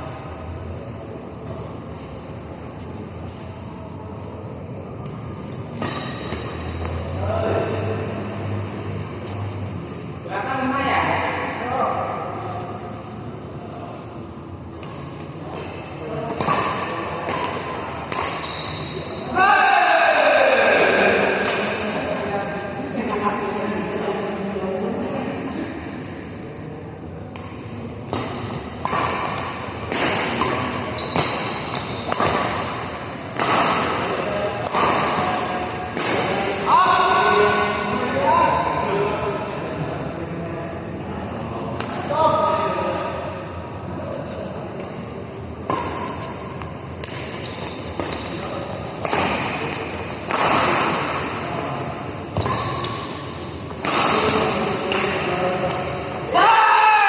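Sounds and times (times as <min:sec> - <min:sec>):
indoor hall noise: 0:00.0 - 0:57.0
racket hitting shuttlecock: 0:14.7 - 0:19.2, 0:21.3 - 0:22.0, 0:27.3 - 0:36.6, 0:45.6 - 0:51.7, 0:52.3 - 0:56.2.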